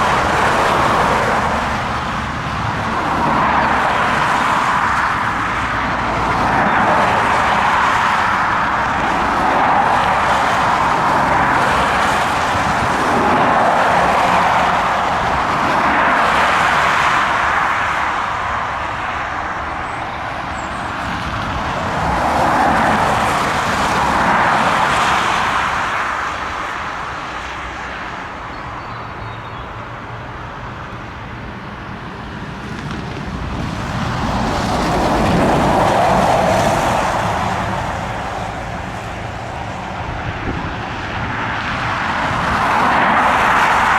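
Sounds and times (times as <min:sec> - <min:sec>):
cars passing by: 0:00.0 - 0:43.9.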